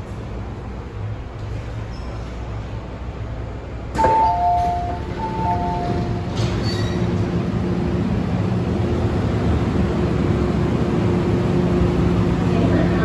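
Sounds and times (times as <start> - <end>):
train running hum and rumble: 0.0 - 13.0
two-tone electronic chime: 4.0 - 6.2.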